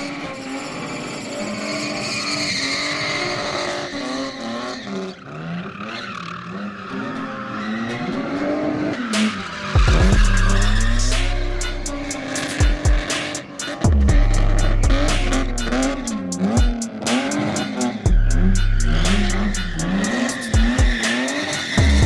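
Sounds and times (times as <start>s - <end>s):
car engine revving: 0.0s - 22.0s
tyres squealing: 0.0s - 22.0s
deep low drone: 13.9s - 16.1s, 18.1s - 20.1s
sharp clicks: 14.9s - 22.0s.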